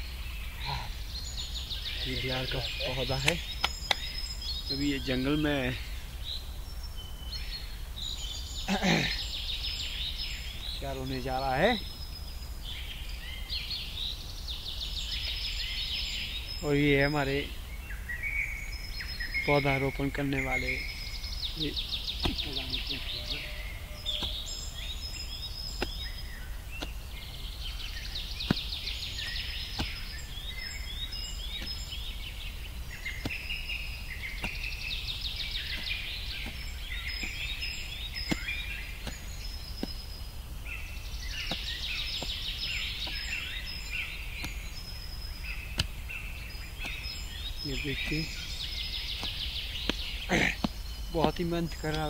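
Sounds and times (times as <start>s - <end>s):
songbird singing: 0.0s - 52.0s
hoe chopping into soil: 21.7s - 52.0s.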